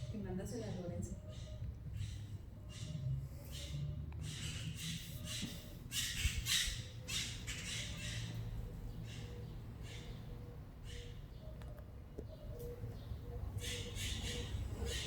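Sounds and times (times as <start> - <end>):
birds rasping: 0.0 - 15.0.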